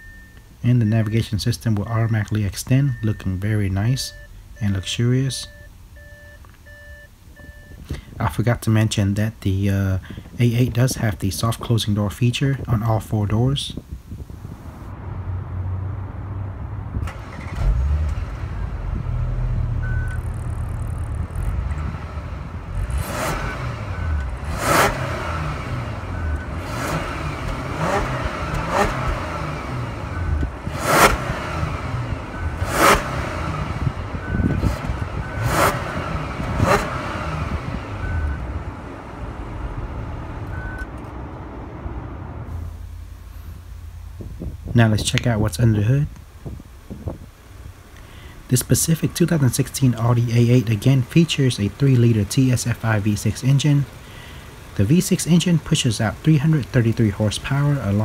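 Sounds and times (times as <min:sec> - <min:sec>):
car engine idling and revving: 0:14.4 - 0:58.0.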